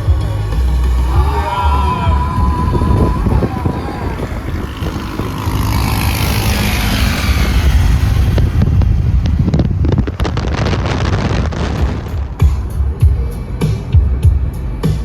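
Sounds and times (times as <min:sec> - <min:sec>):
car driving fast past: 0:00.0 - 0:10.6
wind buffeting microphone: 0:00.0 - 0:15.0.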